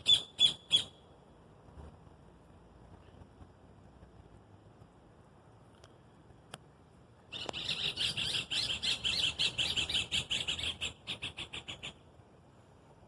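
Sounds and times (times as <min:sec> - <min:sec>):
faint click: 0:05.7 - 0:06.7.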